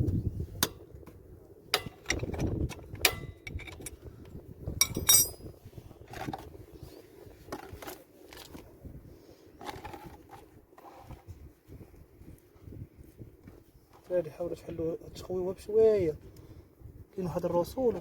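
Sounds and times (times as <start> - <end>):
metal tools clinking on engine: 4.8 - 5.5.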